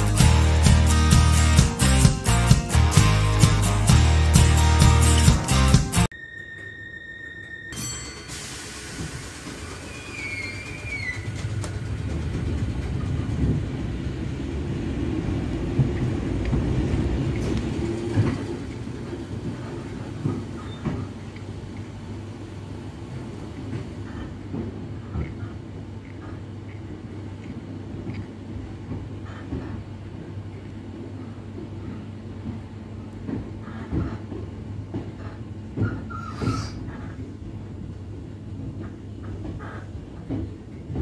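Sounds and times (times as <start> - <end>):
train cabin rumble: 7.4 - 41.0
wheel clicks over rail joints: 9.0 - 14.2.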